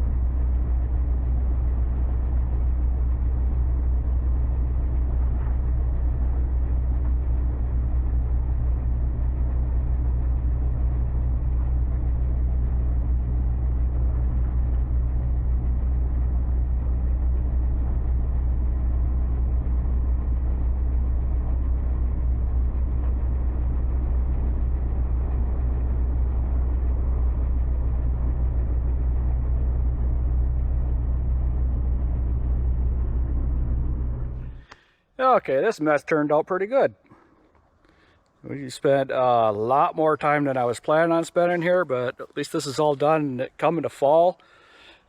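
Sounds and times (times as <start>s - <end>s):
motor engine running: 0.0s - 36.0s.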